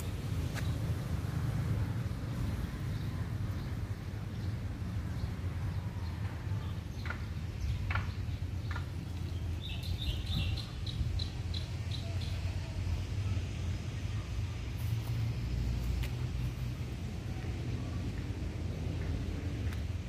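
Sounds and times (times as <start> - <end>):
birds chirping: 2.2 - 14.6.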